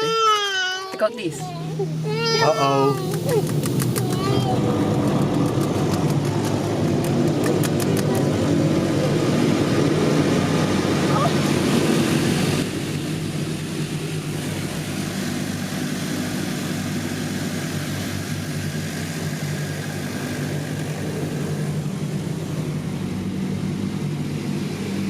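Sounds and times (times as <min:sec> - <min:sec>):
car engine hum inside cabin: 0:00.0 - 0:25.0
constant hiss: 0:01.0 - 0:04.5.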